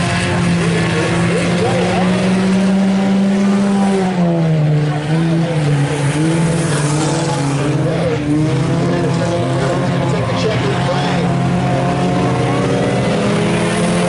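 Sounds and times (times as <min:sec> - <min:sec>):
race car engines running hard: 0:00.0 - 0:14.0.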